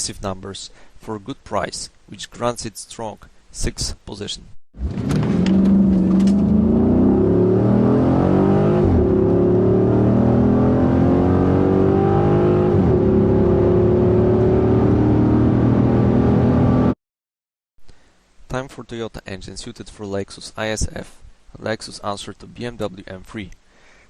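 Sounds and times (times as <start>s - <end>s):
car engine accelerating hard: 4.8s - 17.0s.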